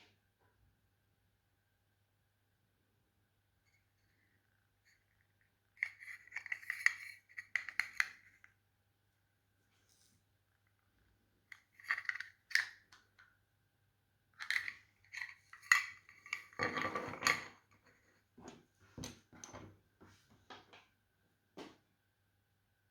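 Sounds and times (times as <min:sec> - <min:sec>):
parts scraping on hard surface: 0:05.8 - 0:08.3, 0:14.4 - 0:18.0
small parts clicking and clinking: 0:05.8 - 0:08.5, 0:11.5 - 0:13.3, 0:14.4 - 0:17.6.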